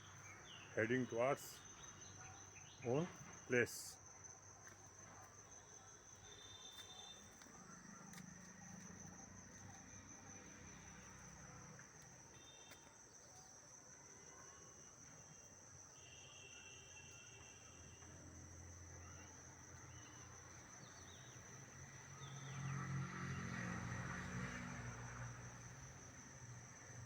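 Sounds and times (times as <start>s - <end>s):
crickets droning: 0.0s - 27.0s
short high insect calls: 5.6s - 22.8s.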